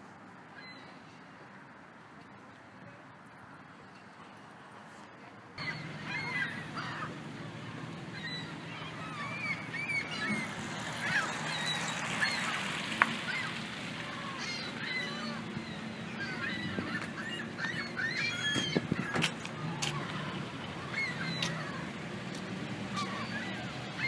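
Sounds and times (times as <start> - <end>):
gulls calling: 5.6 - 24.0.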